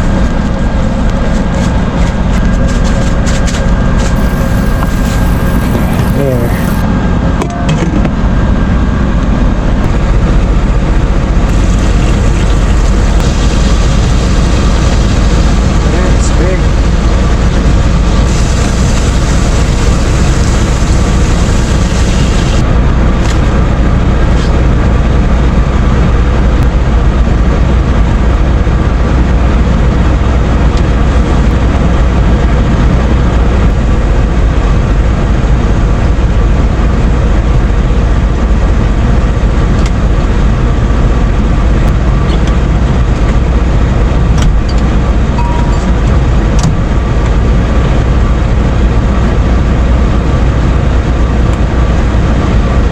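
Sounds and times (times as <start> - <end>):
heavy engine idling: 0.0 - 52.9
meat sizzling in oil: 18.2 - 22.6.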